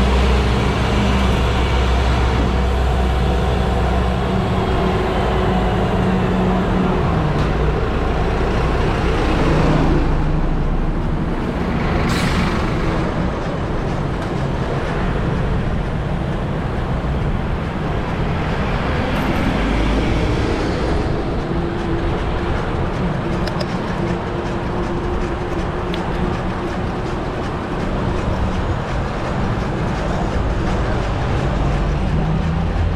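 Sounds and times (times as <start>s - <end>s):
vehicle passing close: 0.0s - 14.1s
traffic engines rumbling: 0.0s - 32.9s.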